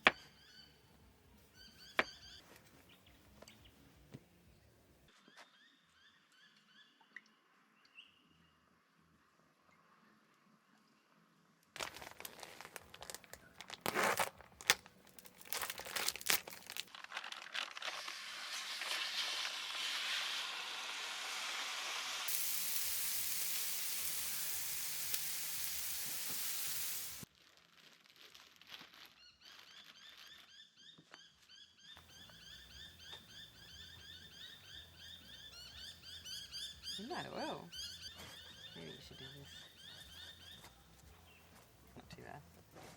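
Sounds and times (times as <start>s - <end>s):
crinkling and clicking handling: 11.8s - 18.0s
steady hiss: 18.6s - 27.3s.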